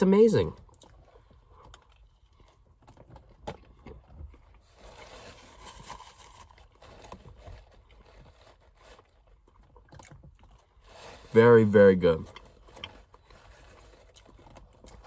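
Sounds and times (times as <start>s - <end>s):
faint chewing: 0.6s - 4.6s, 12.3s - 15.0s
small clicks and rustles: 0.6s - 10.9s, 12.3s - 15.0s.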